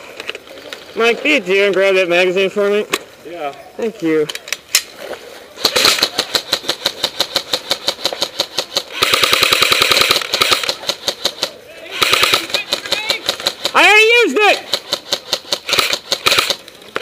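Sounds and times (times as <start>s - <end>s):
airsoft guns firing bursts: 5.6s - 16.6s.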